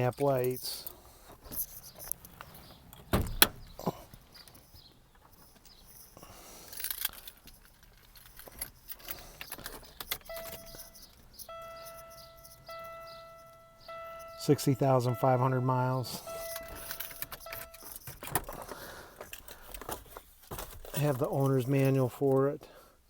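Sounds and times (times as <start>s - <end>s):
keys jangling: 0.0s - 14.4s, 16.1s - 19.5s
clicks and knocks from controls: 1.4s - 4.6s, 16.3s - 20.8s
car warning chime dinging: 10.2s - 18.3s.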